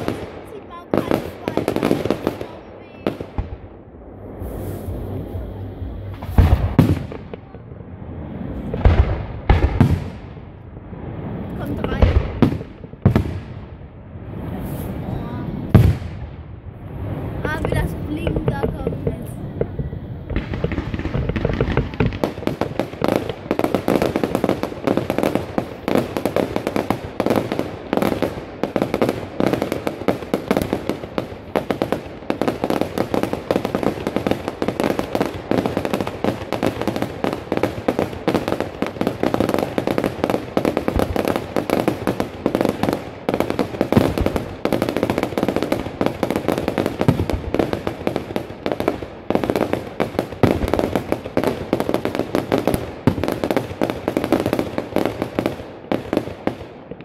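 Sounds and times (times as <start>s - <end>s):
fireworks bangs and crackling: 0.0s - 57.0s
heavy low fireworks booms: 0.0s - 57.0s.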